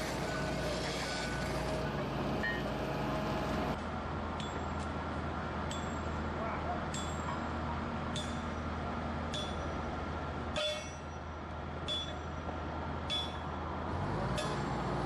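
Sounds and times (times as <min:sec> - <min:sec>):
engine humming: 0:00.0 - 0:06.4
hammer striking steel: 0:06.9 - 0:07.4, 0:08.1 - 0:08.6, 0:09.3 - 0:09.8, 0:10.5 - 0:12.4, 0:13.0 - 0:13.5.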